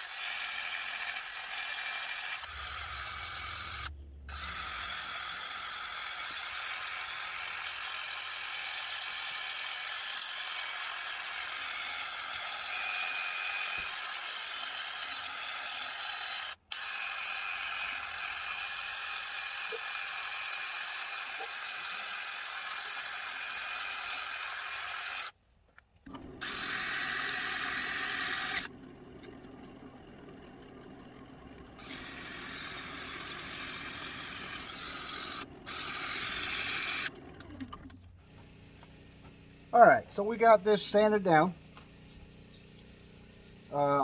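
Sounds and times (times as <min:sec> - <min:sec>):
wood lathe motor whir: 0:00.0 - 0:25.4, 0:26.1 - 0:44.0
sandpaper rubbing spinning wood: 0:40.8 - 0:44.0.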